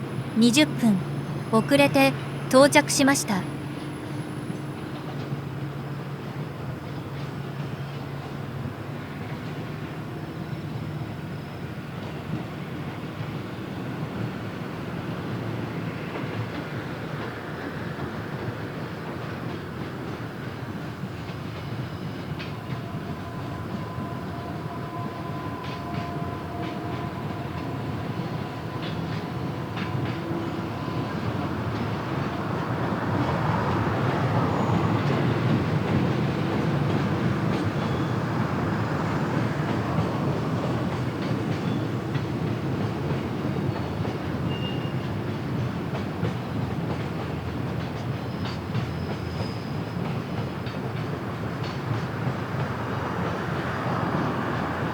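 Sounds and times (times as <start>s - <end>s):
freight train passing: 3.4s - 54.9s.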